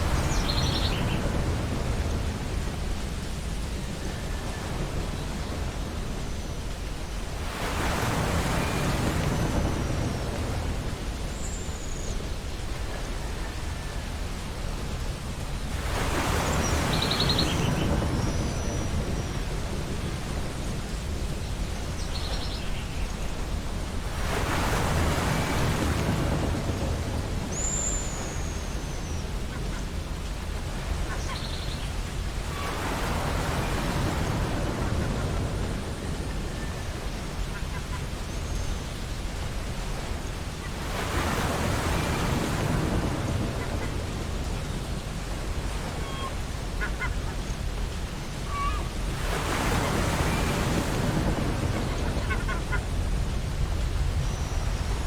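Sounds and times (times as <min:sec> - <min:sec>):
ocean waves breaking: 0:00.0 - 0:55.0
seagulls calling: 0:45.8 - 0:47.4, 0:48.3 - 0:53.0.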